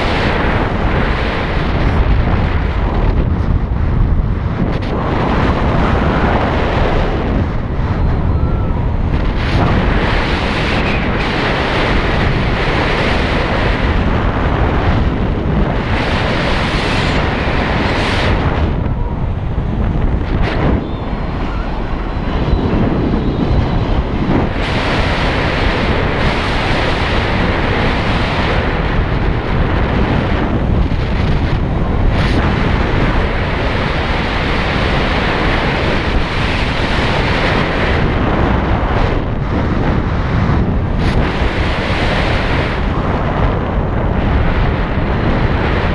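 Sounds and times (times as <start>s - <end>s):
road noise: 0.0s - 34.5s
wind buffeting microphone: 0.0s - 45.9s.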